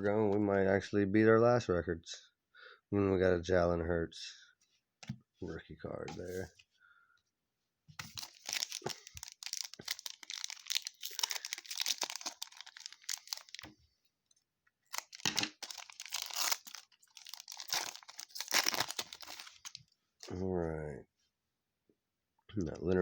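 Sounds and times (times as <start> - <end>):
wrapper being torn and crinkled: 8.0 - 13.7, 14.9 - 19.8.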